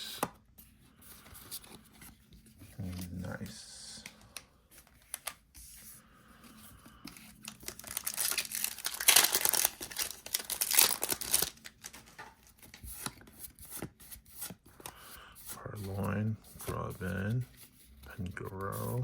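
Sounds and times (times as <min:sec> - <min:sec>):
foil wrapper tearing and crinkling: 0:07.4 - 0:13.2.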